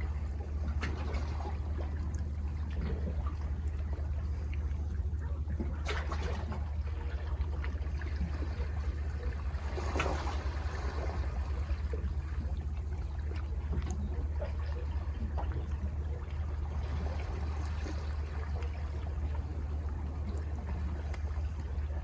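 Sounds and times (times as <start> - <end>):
low rumble: 0.0 - 22.0
sea water washing among rocks: 5.0 - 22.0.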